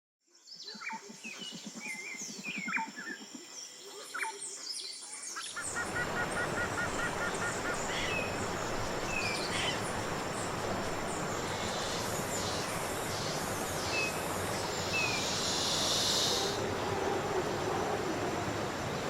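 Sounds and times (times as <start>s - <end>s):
birds calling and chirping: 4.1s - 17.7s
steady rushing noise: 5.6s - 19.0s.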